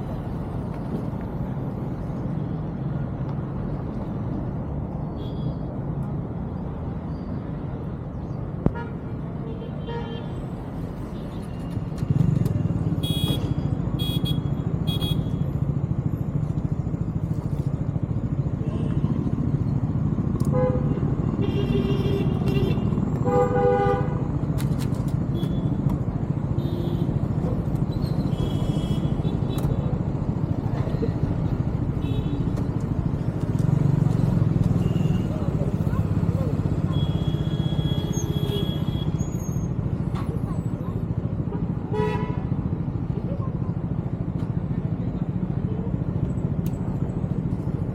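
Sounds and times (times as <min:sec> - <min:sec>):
vehicle horns honking: 0:12.9 - 0:15.4, 0:20.5 - 0:24.2, 0:36.9 - 0:39.3, 0:41.9 - 0:42.4.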